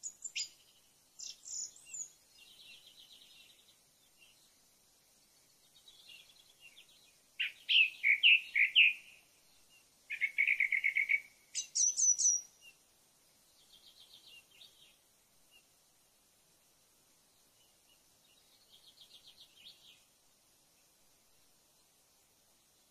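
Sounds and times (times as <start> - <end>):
songbird singing with trills: 0.0 - 4.6, 5.5 - 12.8, 13.5 - 15.7, 17.3 - 20.1.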